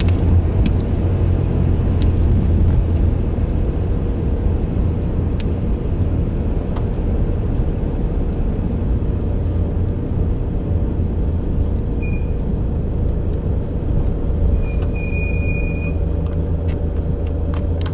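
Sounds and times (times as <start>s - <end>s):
vehicle rumbling: 0.0s - 17.9s
high squeak: 14.5s - 16.0s.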